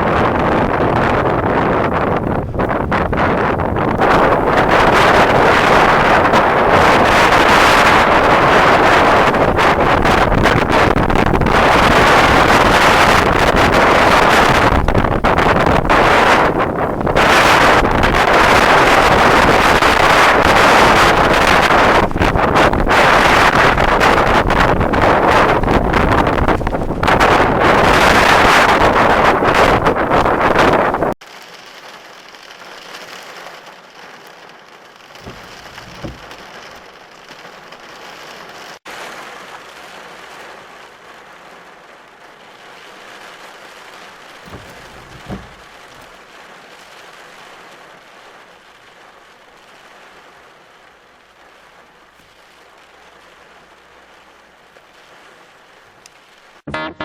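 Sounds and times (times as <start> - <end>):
heavy rain falling: 0.0 - 57.0
low thuds: 35.2 - 36.9, 44.4 - 46.2.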